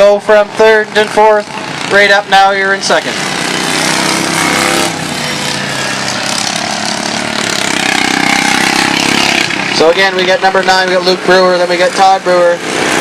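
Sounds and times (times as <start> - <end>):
racing lawn tractor engines: 0.0 - 13.0.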